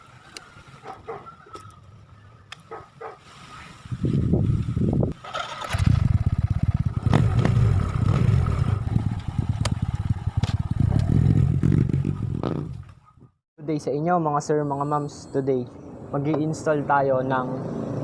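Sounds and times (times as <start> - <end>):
motorcycle engine running: 5.2 - 12.9.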